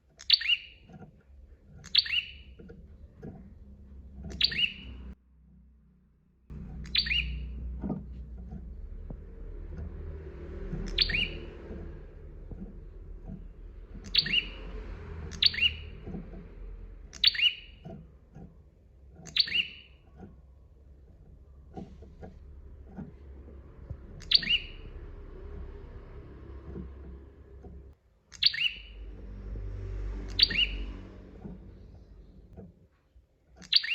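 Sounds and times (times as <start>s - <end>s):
low steady rumble: 0.0s - 33.0s
bird calling sharp notes: 4.3s - 5.1s, 6.6s - 7.8s, 10.7s - 16.2s, 17.0s - 17.9s, 19.2s - 20.0s, 24.1s - 25.7s, 28.3s - 29.1s, 30.2s - 32.1s.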